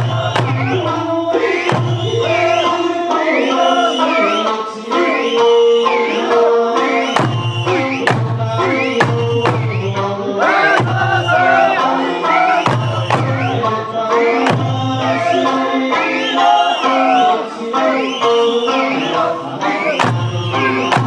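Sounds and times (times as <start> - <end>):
taiko drum strikes: 0.0 - 0.9, 7.1 - 11.9, 12.6 - 13.6
folk song singing: 0.0 - 21.0.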